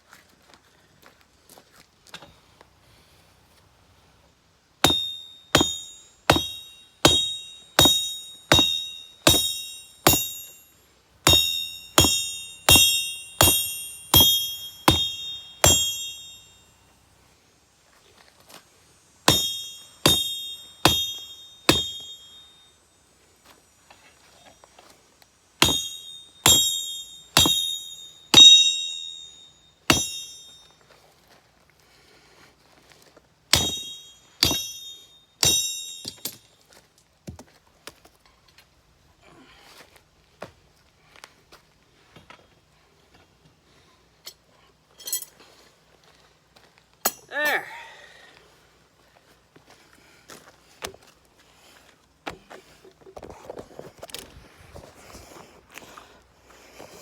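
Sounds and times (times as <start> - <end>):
hammer ringing on anvil: 4.8 - 17.0, 19.3 - 22.7, 25.6 - 30.8, 33.5 - 36.5, 47.0 - 47.4.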